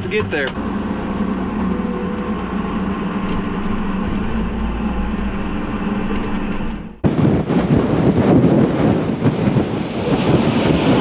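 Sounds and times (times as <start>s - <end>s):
diesel engine running: 0.0s - 7.0s
wind buffeting microphone: 0.0s - 11.0s.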